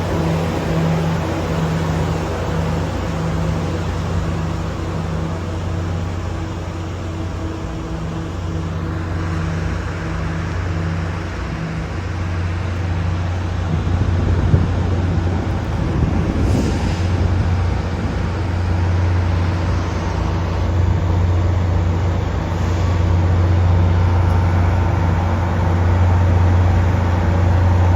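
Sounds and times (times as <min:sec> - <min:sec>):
vehicle engine running steadily: 0:00.0 - 0:27.9.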